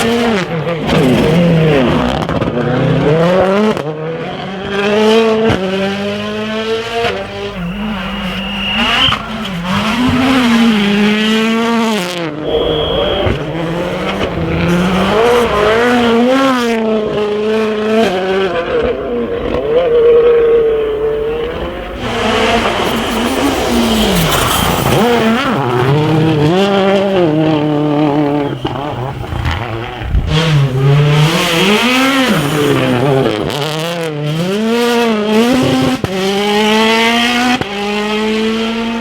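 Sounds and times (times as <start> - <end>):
rally car engines revving: 0.0 - 39.0
high whistles: 7.4 - 9.3, 12.4 - 14.3.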